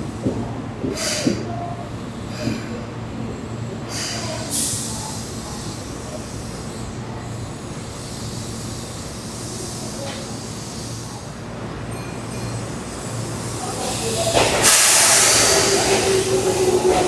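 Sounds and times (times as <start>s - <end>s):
train rumble and hum: 0.0s - 17.0s
sudden high hiss: 13.5s - 17.0s.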